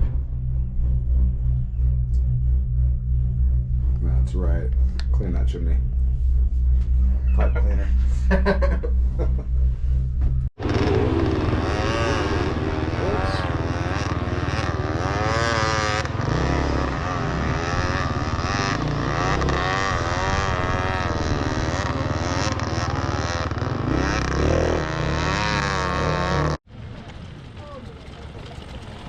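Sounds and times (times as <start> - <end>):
dirt bike engines revving: 10.6 - 29.0.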